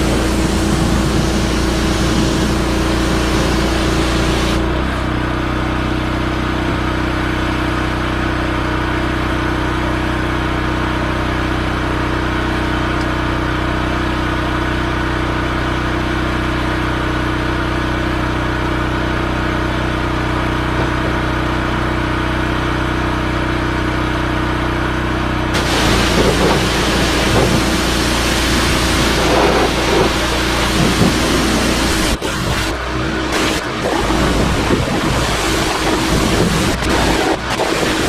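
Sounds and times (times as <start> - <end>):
high-pressure spray hissing: 0.0 - 4.6, 25.6 - 38.0
pressure washer motor drone: 0.0 - 38.0.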